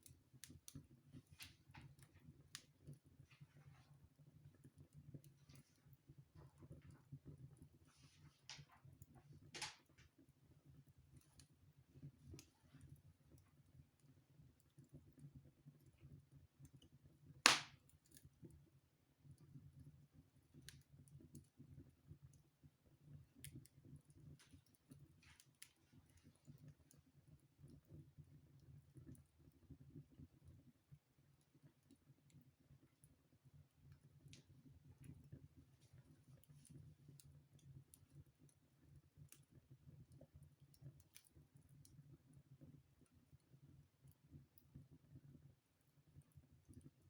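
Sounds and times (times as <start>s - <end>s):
wood fire crackling: 0.0s - 18.6s, 20.2s - 47.0s
fire popping: 7.6s - 10.1s, 17.4s - 17.8s.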